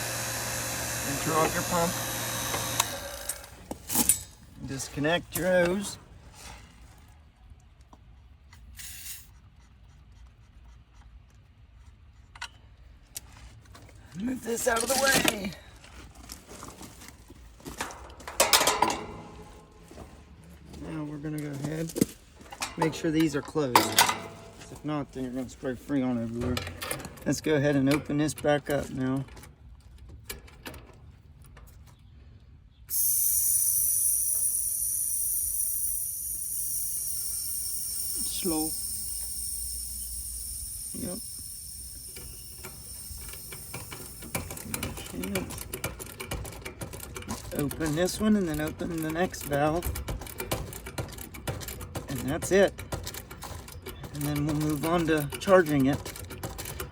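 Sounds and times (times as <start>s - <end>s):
short hiss: 8.7s - 9.4s, 32.9s - 44.8s
gauge hose clicks and rubbing: 32.9s - 56.9s.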